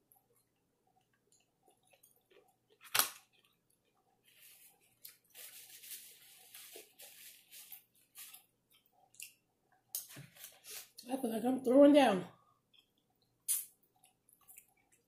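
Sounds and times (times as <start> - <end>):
squishy crackly chewing: 0.3 - 4.1, 12.7 - 15.0
wet mouth smack: 13.5 - 13.7.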